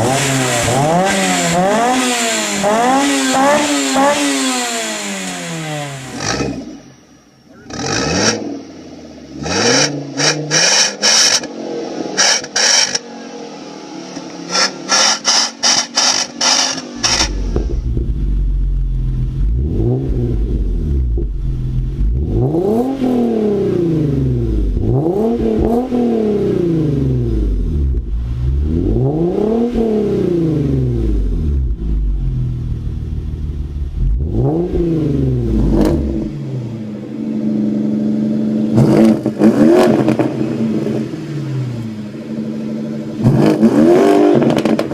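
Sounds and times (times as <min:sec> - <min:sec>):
sports car engine revving: 0:00.0 - 0:44.9
exhaust crackles: 0:14.1 - 0:44.9.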